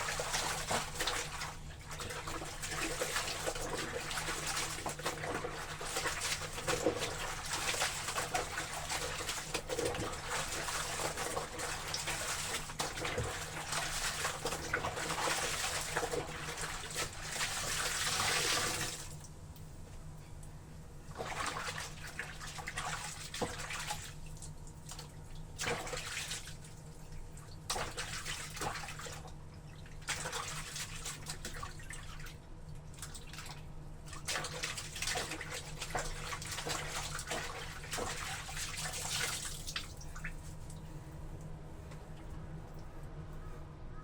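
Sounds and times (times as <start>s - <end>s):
water sloshing in a tub: 0.0s - 43.1s
steady low hum: 18.8s - 44.0s.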